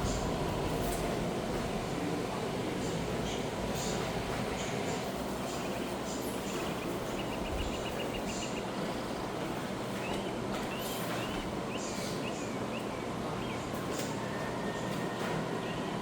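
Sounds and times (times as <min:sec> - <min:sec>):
steady rushing background noise: 0:00.0 - 0:10.2
small birds chirping: 0:05.4 - 0:08.8.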